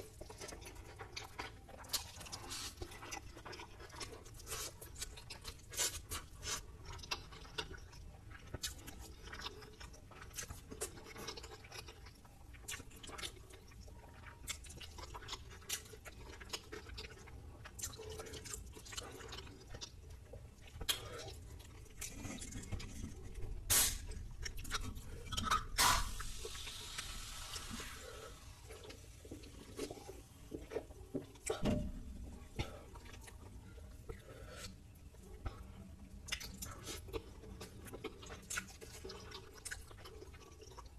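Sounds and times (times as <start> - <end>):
chewing crunchy food: 0.0 - 40.9.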